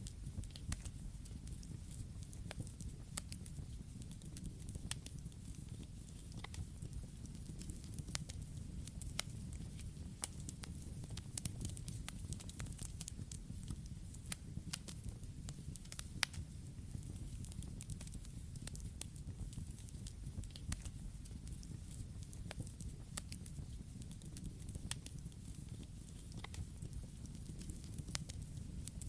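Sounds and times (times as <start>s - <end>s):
burning wood crackling and popping: 0.0s - 29.0s
low rumble of flames: 0.0s - 29.0s.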